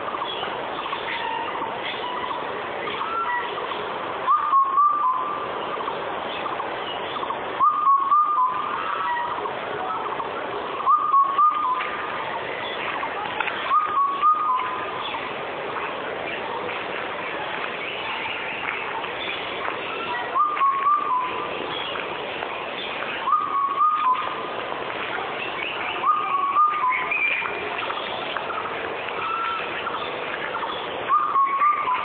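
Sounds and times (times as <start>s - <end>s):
steady background noise: 0.0s - 32.0s
cuckoo whistled call: 0.1s - 3.6s, 4.2s - 5.5s, 7.2s - 12.8s, 13.4s - 15.2s, 19.2s - 22.0s, 23.1s - 24.4s, 25.4s - 32.0s.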